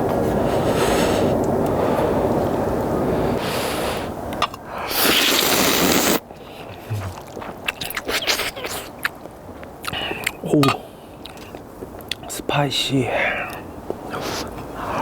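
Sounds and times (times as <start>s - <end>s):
wet chewing clicks: 4.4s - 12.3s
person slurping noodles: 4.8s - 8.9s.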